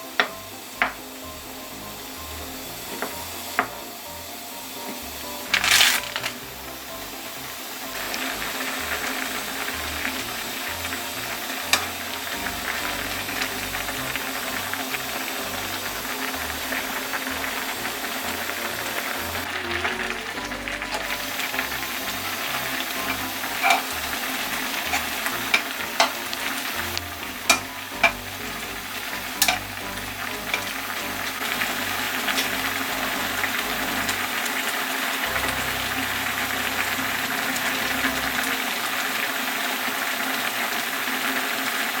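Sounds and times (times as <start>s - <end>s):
food sizzling in a pan: 0.0s - 42.0s
utensil knocking against pan: 23.0s - 24.0s, 24.8s - 26.3s, 27.4s - 28.3s, 29.4s - 29.7s.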